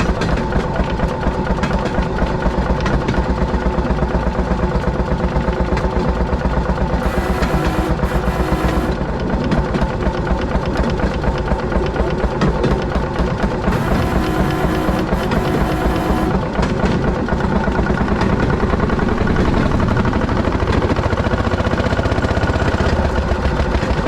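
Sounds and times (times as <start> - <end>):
small motorcar engine pulsing: 6.8 - 9.1, 13.6 - 16.6.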